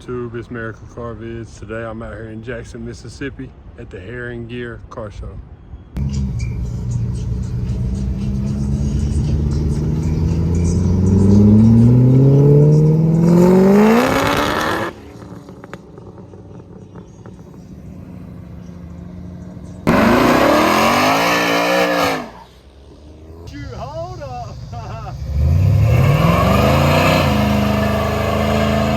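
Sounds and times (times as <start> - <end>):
car engine revving: 6.0 - 28.9.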